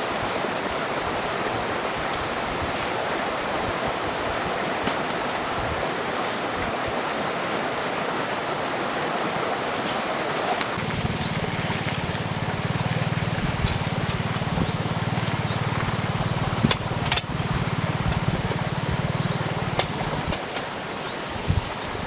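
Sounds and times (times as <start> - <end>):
stream flowing: 0.0 - 22.0
low engine-like drone: 10.8 - 20.4.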